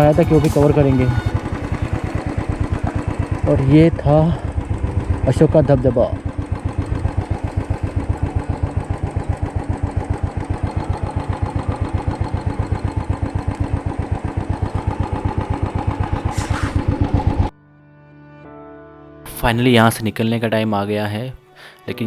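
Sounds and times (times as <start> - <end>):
motorcycle engine idling: 0.0 - 17.5
brief hiss: 16.3 - 16.8.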